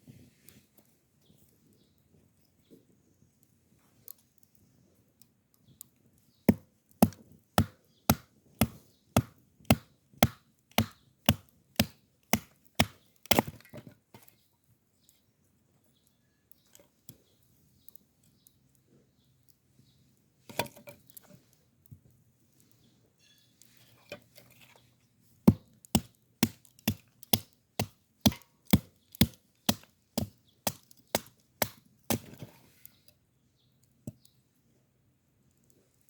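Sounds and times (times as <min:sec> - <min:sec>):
firewood being chopped: 0:06.5 - 0:14.2, 0:25.4 - 0:32.5.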